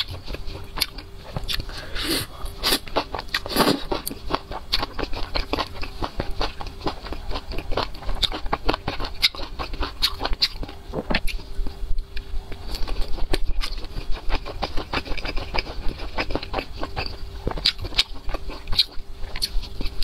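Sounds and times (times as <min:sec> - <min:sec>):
steady low hum: 0:00.0 - 0:20.0
chewing clicks: 0:12.0 - 0:20.0.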